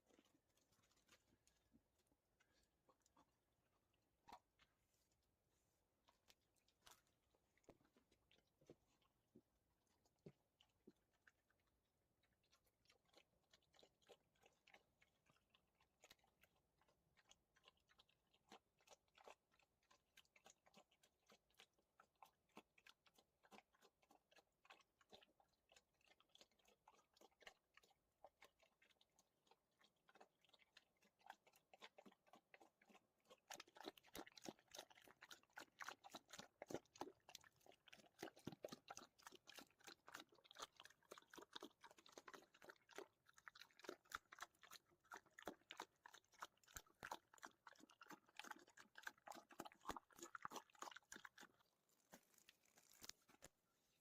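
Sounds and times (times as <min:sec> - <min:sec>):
chewing and crunching food: 0:00.0 - 0:54.0.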